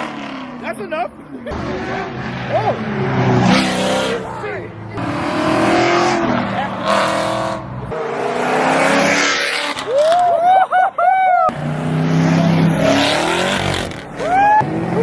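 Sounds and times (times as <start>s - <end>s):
car engine revving hard: 1.5s - 9.9s, 11.5s - 15.0s
tires squealing: 1.5s - 15.0s.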